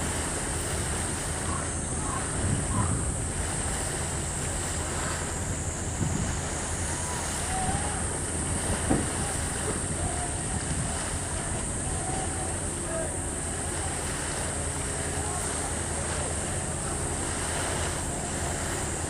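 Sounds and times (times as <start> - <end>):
wind noise on microphone: 0.0 - 12.9
faint distant calls: 0.1 - 19.0.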